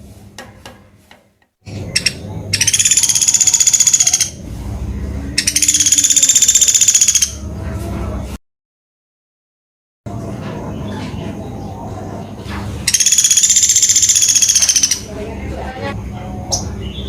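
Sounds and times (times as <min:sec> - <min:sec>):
woodpecker rattling calls: 0:01.7 - 0:04.4, 0:05.4 - 0:07.4, 0:12.9 - 0:15.1.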